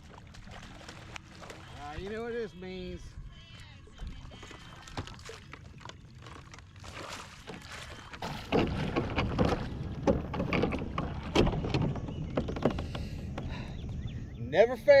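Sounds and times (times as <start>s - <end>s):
water splashing: 0.0s - 13.4s
knocks against a kayak: 8.2s - 14.0s.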